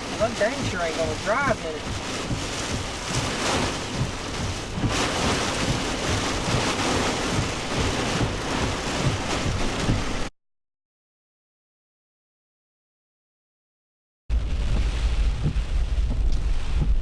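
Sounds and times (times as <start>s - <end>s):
heavy rain beating on a truck: 0.0s - 10.3s, 14.3s - 17.0s
wind gusts buffeting microphone: 0.0s - 10.3s, 14.3s - 17.0s.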